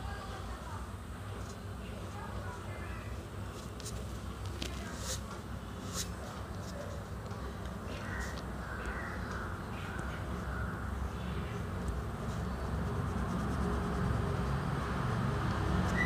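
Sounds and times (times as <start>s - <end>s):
pastel scratching on paper: 3.5s - 7.2s, 11.5s - 16.0s.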